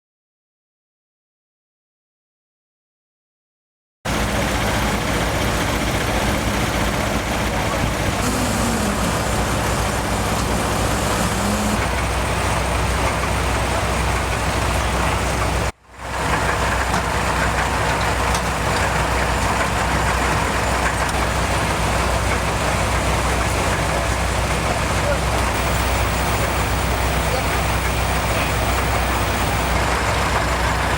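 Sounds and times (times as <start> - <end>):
vehicle engine idling: 4.1 - 30.9.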